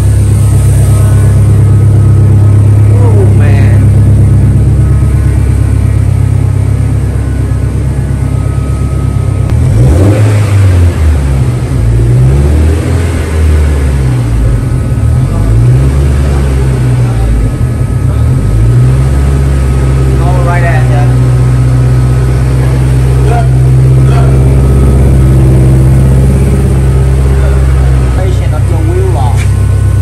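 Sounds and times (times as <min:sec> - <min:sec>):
car engine revving on dyno: 0:00.0 - 0:30.0.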